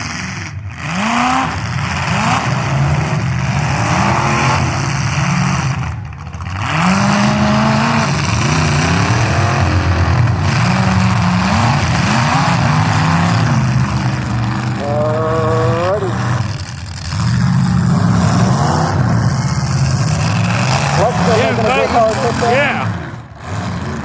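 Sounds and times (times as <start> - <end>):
car engines revving hard: 0.0 - 24.0.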